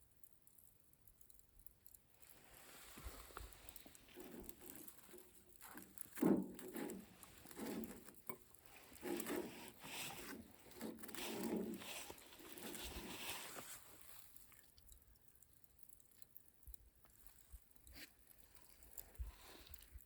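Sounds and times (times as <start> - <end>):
person chewing food: 1.9 - 16.4, 17.0 - 20.0.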